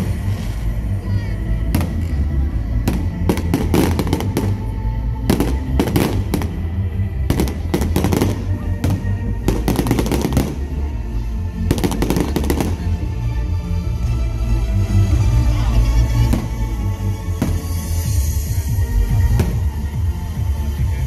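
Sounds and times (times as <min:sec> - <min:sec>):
fireworks bangs and crackles: 0:00.0 - 0:10.9, 0:11.6 - 0:13.1, 0:16.2 - 0:20.1
music playing: 0:00.0 - 0:21.0.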